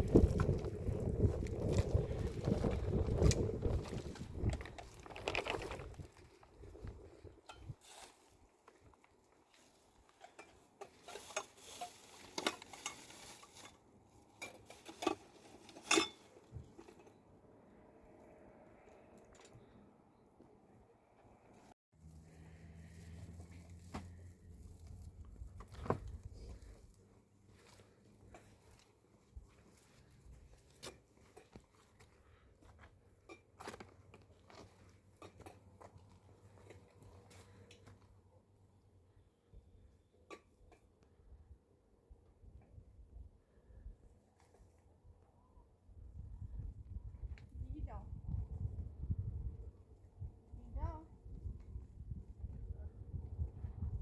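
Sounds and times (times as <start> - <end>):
small clicks and crunches: 1.4 - 6.5.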